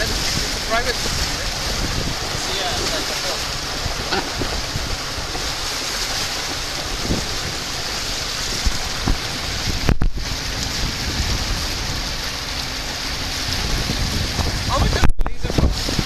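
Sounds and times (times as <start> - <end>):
water washing around boat: 0.0 - 16.0
wind on microphone: 0.0 - 16.0.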